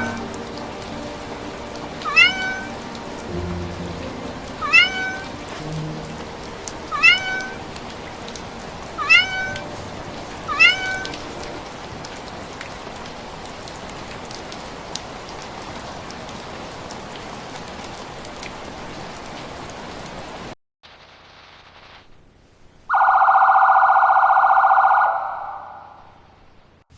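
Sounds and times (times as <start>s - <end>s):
steady hiss: 0.0s - 11.7s
cat meowing: 2.0s - 2.7s, 4.6s - 5.4s, 6.9s - 7.6s, 9.0s - 11.6s.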